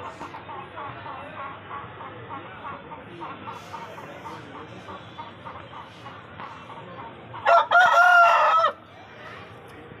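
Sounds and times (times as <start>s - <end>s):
rooster crowing: 7.4s - 8.8s.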